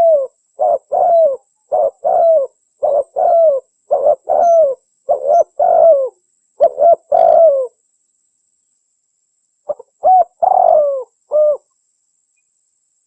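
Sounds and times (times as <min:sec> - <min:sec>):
dove cooing: 0:00.0 - 0:07.8, 0:09.7 - 0:11.7.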